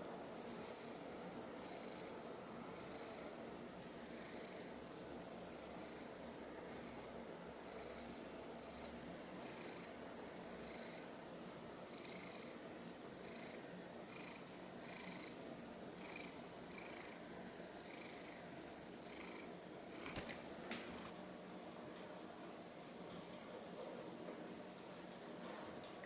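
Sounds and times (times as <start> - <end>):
cat purring: 0.4 - 3.4, 4.0 - 4.8, 5.5 - 11.1, 11.8 - 12.6, 13.2 - 21.1.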